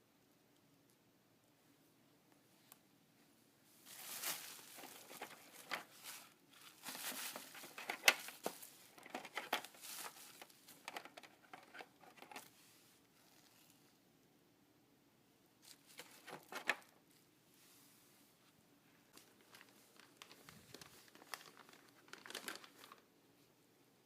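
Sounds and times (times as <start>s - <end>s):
packaging crinkling and rustling: 3.8s - 12.5s, 15.6s - 16.9s, 19.1s - 23.1s.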